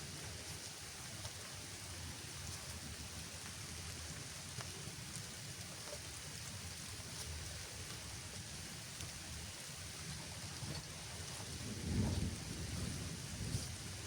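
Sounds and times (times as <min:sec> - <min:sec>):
steady rainfall: 0:00.0 - 0:14.0.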